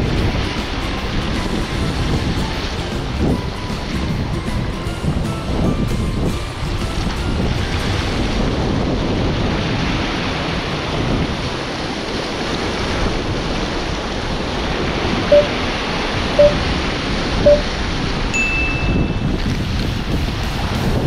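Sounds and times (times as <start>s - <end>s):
surf washing against shore: 0.0s - 21.0s
wind buffeting microphone: 0.0s - 21.0s
short beeps: 15.3s - 15.6s, 16.4s - 16.6s, 17.5s - 17.7s, 18.4s - 19.4s.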